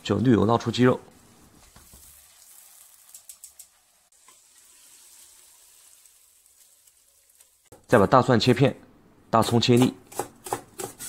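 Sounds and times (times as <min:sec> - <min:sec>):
oil sizzling: 0:01.1 - 0:07.9.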